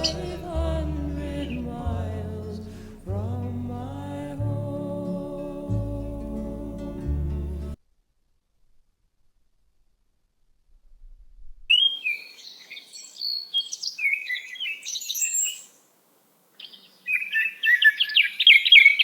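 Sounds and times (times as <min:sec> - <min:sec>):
songbird singing: 0:00.0 - 0:07.0, 0:11.7 - 0:15.8, 0:16.6 - 0:19.0.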